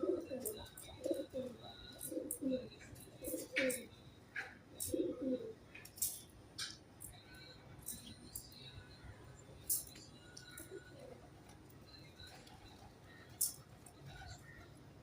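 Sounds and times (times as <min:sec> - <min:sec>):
pigeons cooing: 0:00.0 - 0:06.2, 0:10.5 - 0:11.6, 0:12.2 - 0:15.0.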